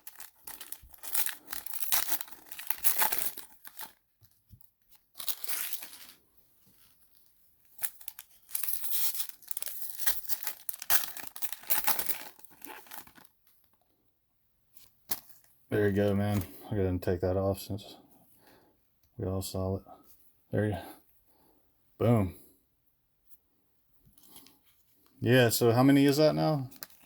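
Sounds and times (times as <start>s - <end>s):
wrappers torn and crinkled: 0.0s - 4.1s, 4.9s - 6.2s, 7.2s - 13.5s, 25.8s - 27.0s.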